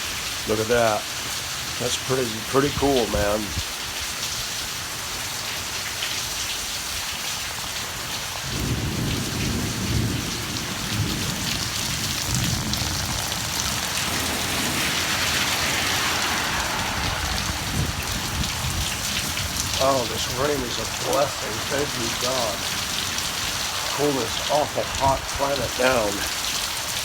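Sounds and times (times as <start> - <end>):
heavy rain: 0.0 - 27.0
thunder rumbling: 8.4 - 26.4.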